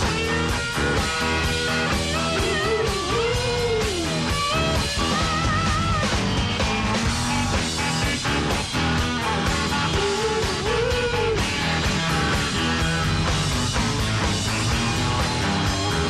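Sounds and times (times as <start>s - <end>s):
guitar bending notes: 0.0s - 16.0s
live rock band playing: 0.0s - 16.0s.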